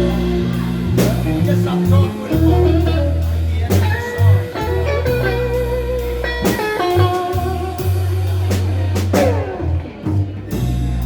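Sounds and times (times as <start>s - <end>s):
bass: 0.0s - 11.0s
drums: 0.0s - 11.0s
electric guitar lead: 0.0s - 11.0s.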